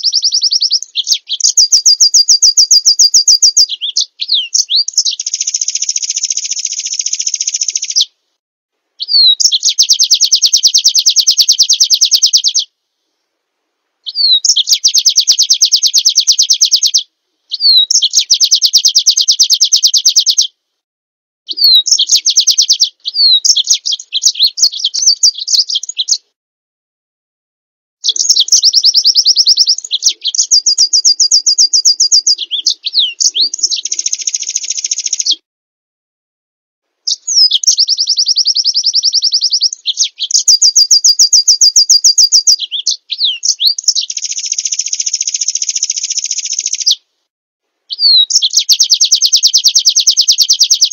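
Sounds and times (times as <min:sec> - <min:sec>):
songbird buzzy trills: 0:00.0 - 0:08.1, 0:21.5 - 0:26.2, 0:28.0 - 0:35.4, 0:37.1 - 0:47.0.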